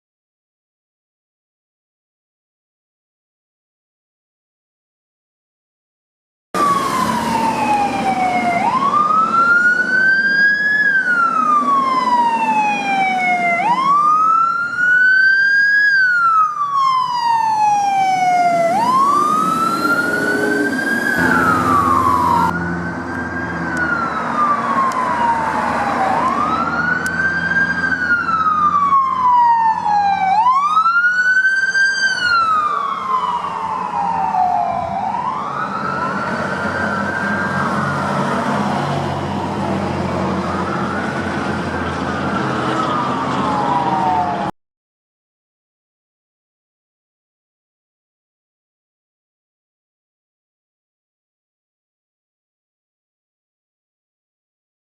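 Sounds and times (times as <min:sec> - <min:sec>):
truck engine: 0:06.6 - 0:15.1, 0:17.4 - 0:44.5
road noise: 0:06.6 - 0:44.5
siren wailing: 0:06.6 - 0:44.5.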